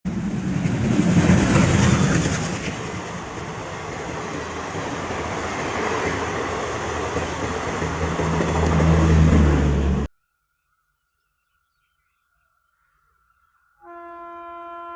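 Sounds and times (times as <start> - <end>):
train wheel and rail noise: 0.1 - 10.1.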